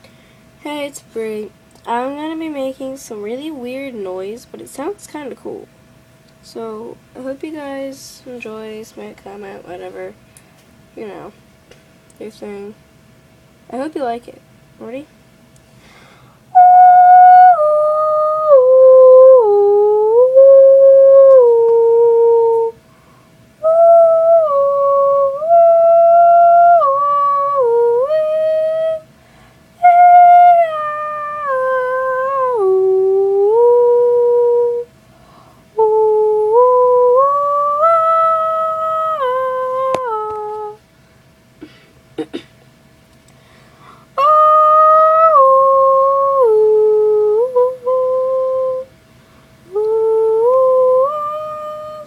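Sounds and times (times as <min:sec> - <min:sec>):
girl humming a tune: 0:16.5 - 0:22.8, 0:23.6 - 0:29.1, 0:29.8 - 0:40.8, 0:44.2 - 0:48.9, 0:49.7 - 0:52.0.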